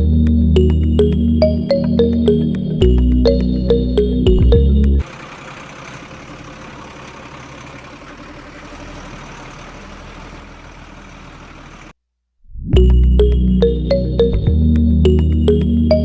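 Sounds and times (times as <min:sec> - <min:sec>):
background music: 0:00.0 - 0:05.0, 0:12.8 - 0:16.0.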